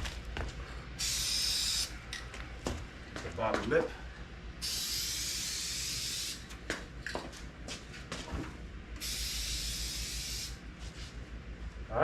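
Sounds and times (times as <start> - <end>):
spray paint can spraying: 1.0 - 1.9, 4.6 - 6.5, 9.0 - 10.6.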